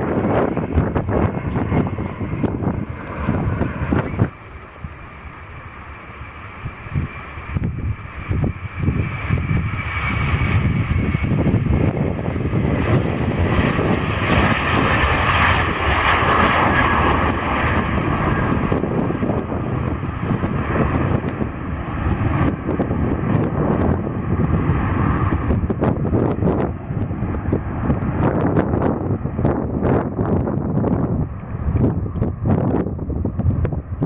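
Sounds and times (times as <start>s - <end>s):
jet engines passing: 0.0s - 34.0s.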